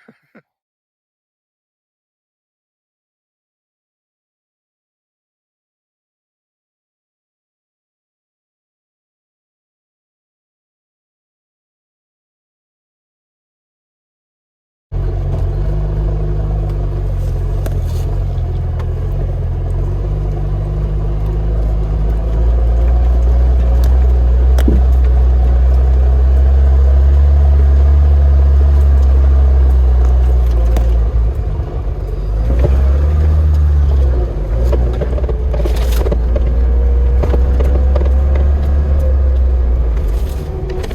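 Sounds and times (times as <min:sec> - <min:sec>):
car engine driving: 0:15.0 - 0:40.9.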